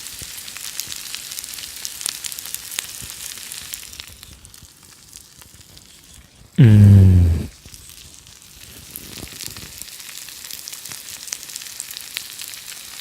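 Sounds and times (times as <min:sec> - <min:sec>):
food sizzling in a pan: 0:10.0 - 0:13.0.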